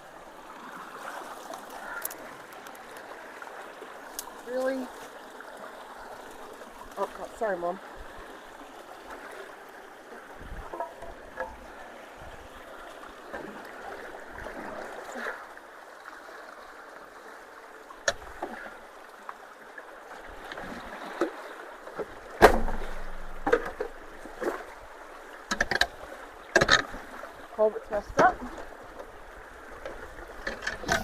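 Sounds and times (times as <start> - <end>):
water running through culvert: 0.0 - 31.0
knocks and clunks: 10.4 - 11.7, 22.0 - 24.6, 25.5 - 26.9, 29.8 - 31.0.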